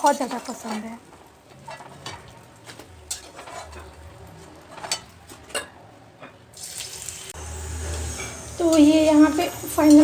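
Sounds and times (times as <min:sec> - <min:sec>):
metal utensil clinking on pan: 0:03.0 - 0:04.1, 0:04.7 - 0:06.4
food deep-frying in oil: 0:06.5 - 0:10.0.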